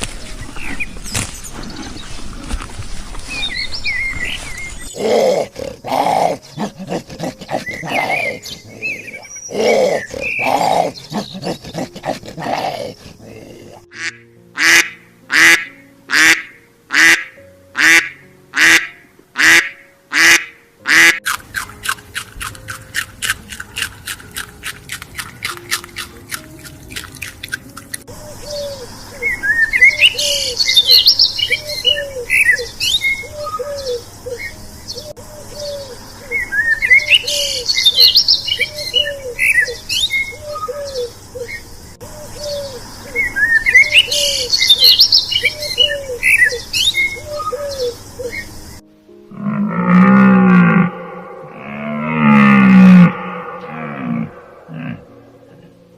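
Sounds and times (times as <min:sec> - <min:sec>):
animal calls: 0:04.9 - 0:16.4, 0:49.3 - 0:55.9
loud evenly spaced calls: 0:13.9 - 0:27.7
bird chirping: 0:23.7 - 0:48.8.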